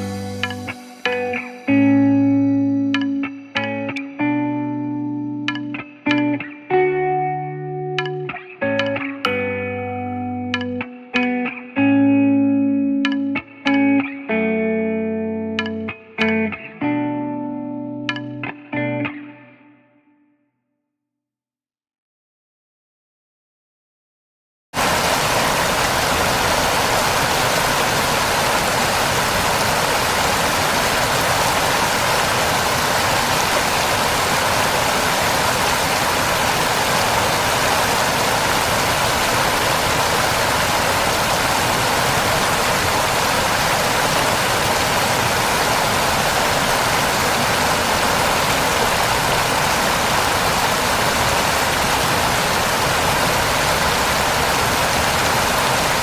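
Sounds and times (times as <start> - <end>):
waterfall roaring: 24.8 - 56.0.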